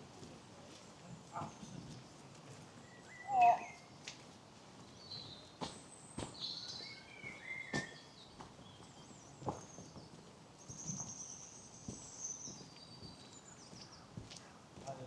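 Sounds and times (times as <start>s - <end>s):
birds calling and singing: 2.8s - 4.1s, 4.8s - 14.2s
footsteps on a path: 3.9s - 6.5s, 7.2s - 9.8s, 11.9s - 15.0s.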